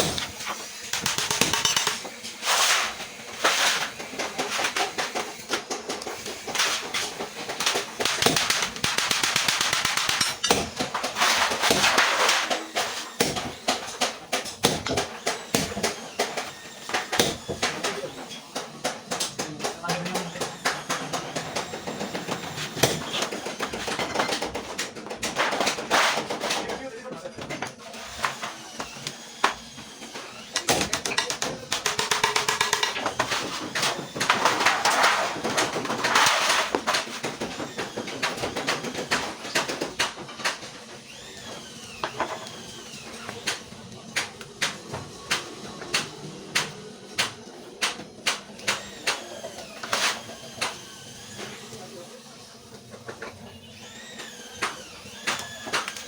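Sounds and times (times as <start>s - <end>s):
rapid hammer taps: 0.0s - 2.0s.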